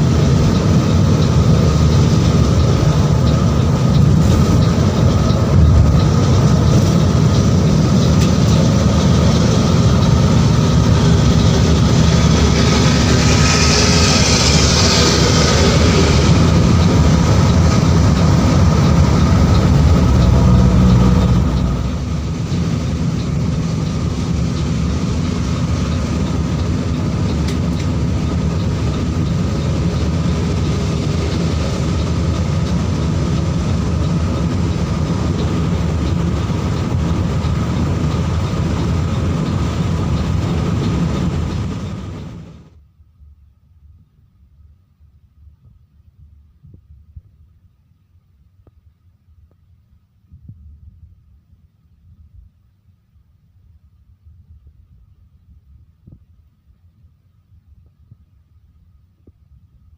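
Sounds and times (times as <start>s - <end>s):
bus engine rumbling: 0.0s - 42.9s.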